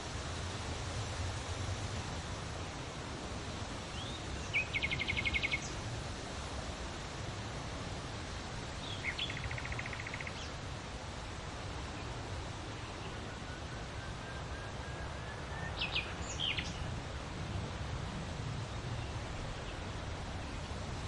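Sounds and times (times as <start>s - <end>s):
wind with low rumble: 0.0s - 21.0s
small bird singing: 4.0s - 5.8s, 8.8s - 10.6s, 15.4s - 16.9s.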